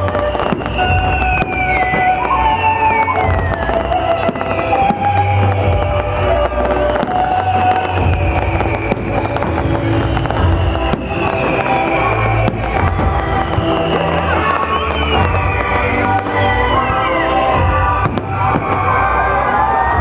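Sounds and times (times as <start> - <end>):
fireworks exploding with bangs: 0.0 - 20.0
music playing: 0.0 - 20.0.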